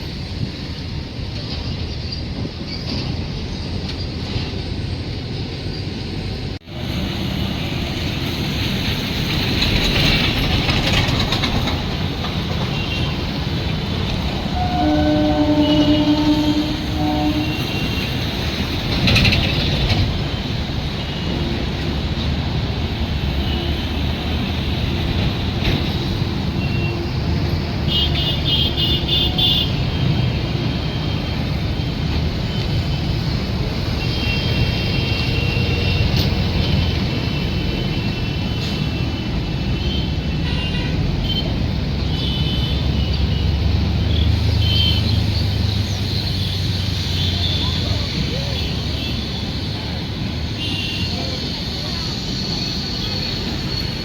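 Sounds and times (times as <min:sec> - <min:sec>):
train rumbling: 0:00.0 - 0:54.0
train horn: 0:14.2 - 0:18.5, 0:26.0 - 0:31.2, 0:34.0 - 0:43.6.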